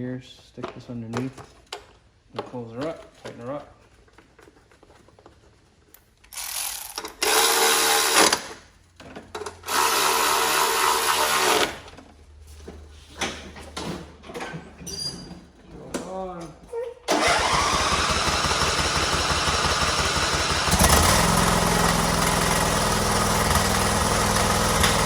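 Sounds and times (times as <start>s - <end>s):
power drill driving screws: 6.3s - 8.6s, 9.6s - 11.8s.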